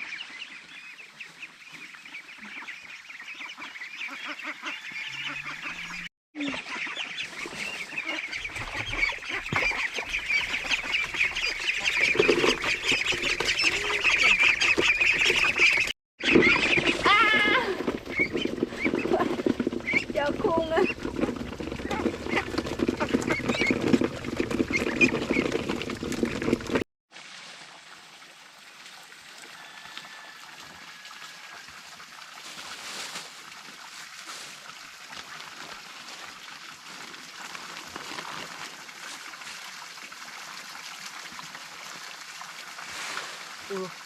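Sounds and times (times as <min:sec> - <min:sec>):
ducks quacking: 0:00.0 - 0:21.1, 0:21.8 - 0:23.8
gently running water: 0:18.7 - 0:44.0.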